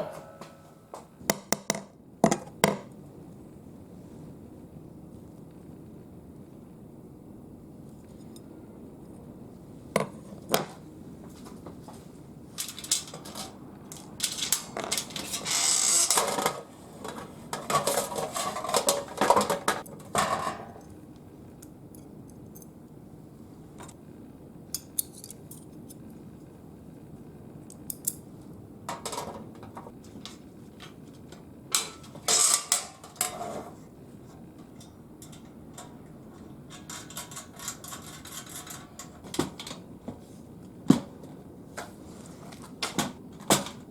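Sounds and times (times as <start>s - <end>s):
metal parts clanking: 31.8s - 33.6s.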